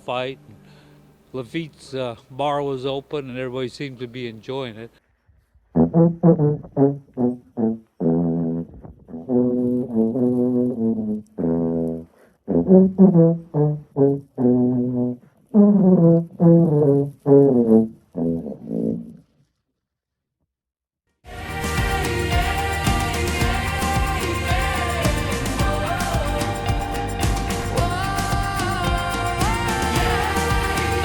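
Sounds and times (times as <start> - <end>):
brass instrument melody: 5.8 - 18.5, 21.3 - 31.0.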